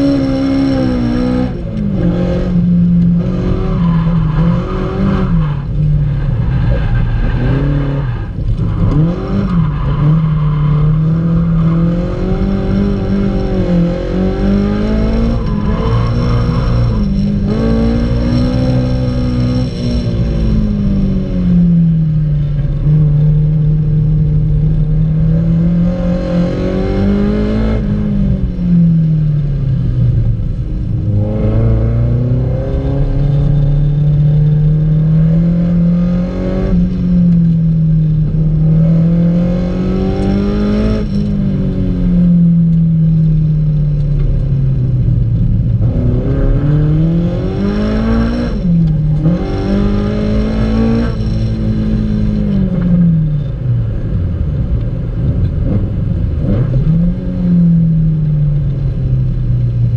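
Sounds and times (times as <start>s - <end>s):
car engine revving from cabin: 45.7s - 53.2s.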